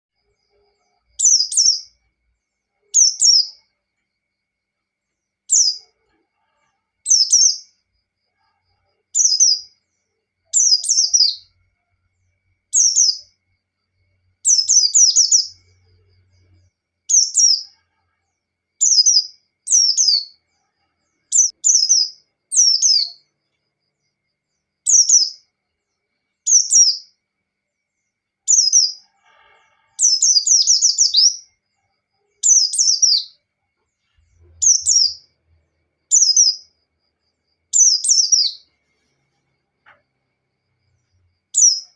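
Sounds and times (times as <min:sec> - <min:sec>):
bird chirping song: 0:00.1 - 0:41.9.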